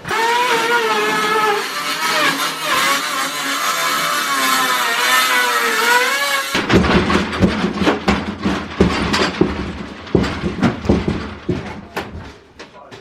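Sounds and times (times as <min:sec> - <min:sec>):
power tool motor whine: 0:00.0 - 0:06.7.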